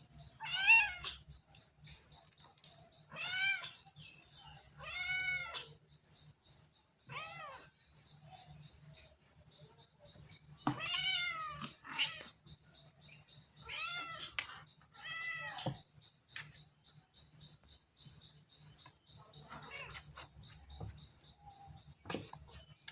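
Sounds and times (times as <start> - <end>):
cat meowing: 7.1 - 7.7.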